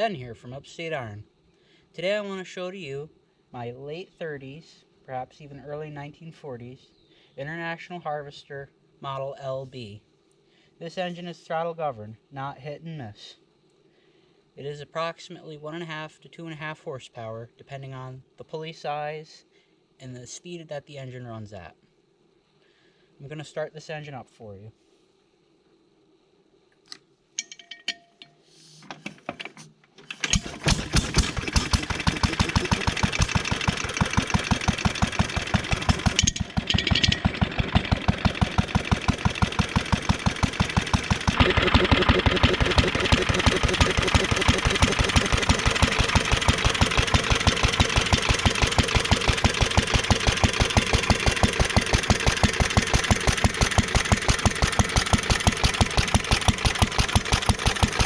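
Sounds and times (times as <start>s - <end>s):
stationary engine starting and running: 30.1s - 58.0s.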